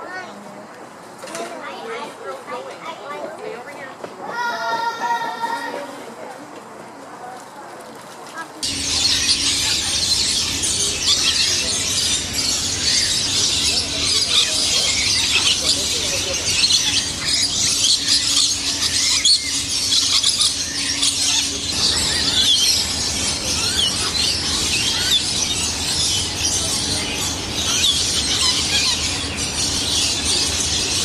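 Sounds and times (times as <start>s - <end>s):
chorus of small birds chirping: 8.6s - 31.0s.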